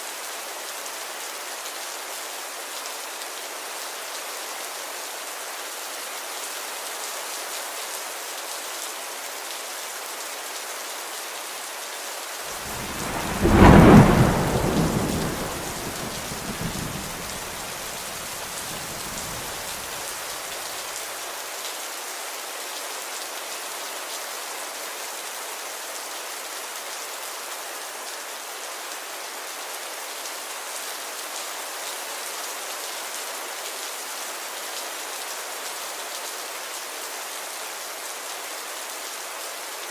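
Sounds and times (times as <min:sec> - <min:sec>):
steady rain falling: 0:00.0 - 0:39.9
thunder clap rumbling: 0:12.6 - 0:20.0.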